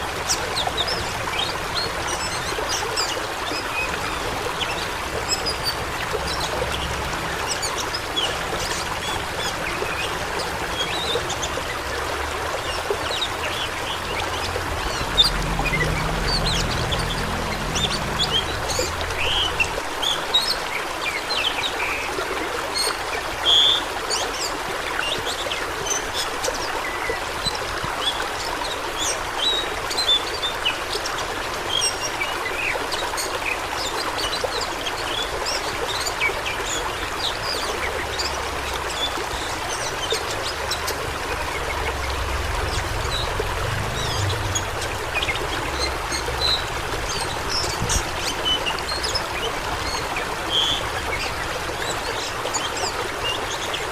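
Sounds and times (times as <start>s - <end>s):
stream water rushing: 0.0s - 53.9s.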